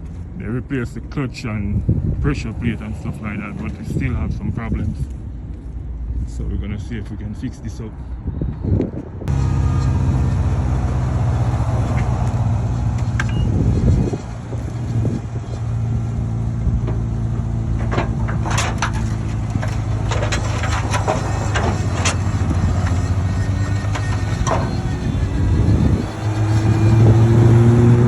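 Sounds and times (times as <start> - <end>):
vehicle engine running: 9.3 - 28.0
sharp clicks and knocks: 16.8 - 25.2.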